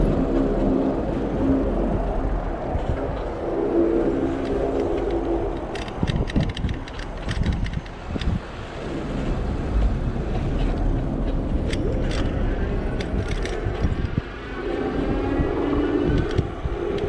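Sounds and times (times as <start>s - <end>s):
street traffic: 0.0s - 17.0s
clicks and rattles: 4.4s - 8.4s, 10.7s - 14.2s.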